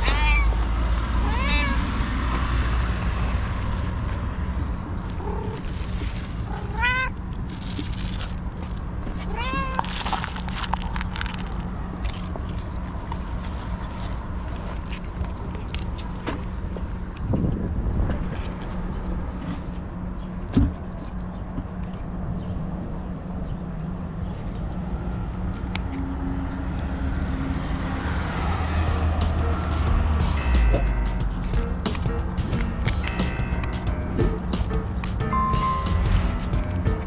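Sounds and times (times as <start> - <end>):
cat meowing: 0.0 - 0.6, 1.2 - 2.0, 6.6 - 7.2, 9.2 - 9.9.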